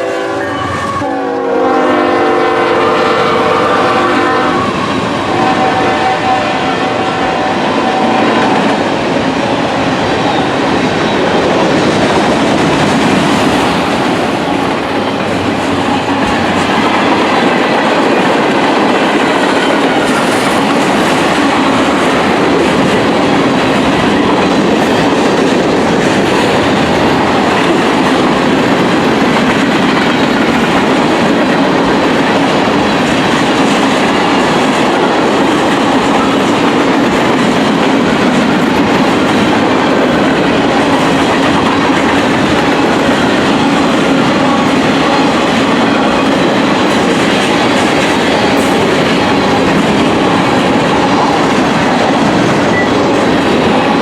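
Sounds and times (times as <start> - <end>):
train horn blast: 0.0 - 8.7
train wheels rumbling on rails: 0.0 - 54.0.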